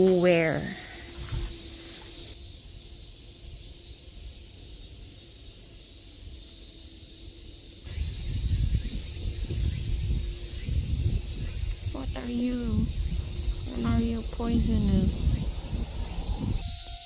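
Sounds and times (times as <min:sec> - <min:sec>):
insect chorus hiss: 0:00.0 - 0:17.0
low rumble: 0:08.0 - 0:16.6.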